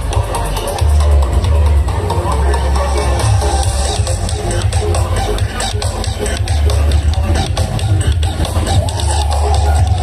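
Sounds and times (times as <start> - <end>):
deep bass: 0.0 - 10.0.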